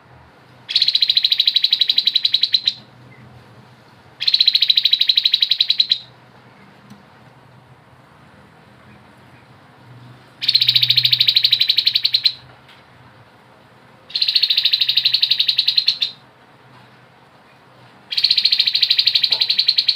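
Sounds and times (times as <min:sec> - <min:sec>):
bird singing rattling trill: 0:00.7 - 0:02.9, 0:04.2 - 0:06.1, 0:10.4 - 0:12.4, 0:14.1 - 0:16.2, 0:18.1 - 0:19.9.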